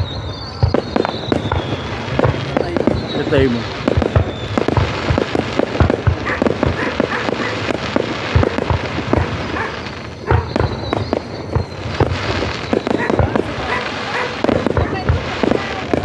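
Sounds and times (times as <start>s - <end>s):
fireworks bangs: 0.0s - 16.0s
fireworks crackle and rumble: 0.0s - 16.0s.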